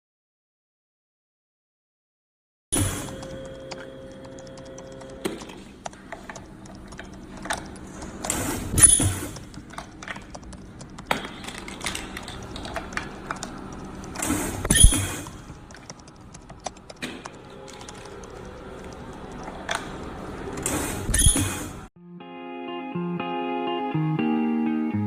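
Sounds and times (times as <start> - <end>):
mechanical clicks and knocks: 2.8 - 21.9.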